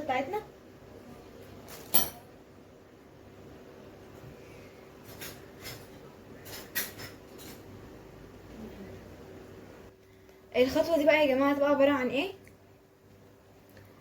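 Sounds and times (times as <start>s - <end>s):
faint steady hum: 0.0s - 14.0s
utensils and dishes clinking: 1.6s - 2.3s, 5.0s - 7.8s.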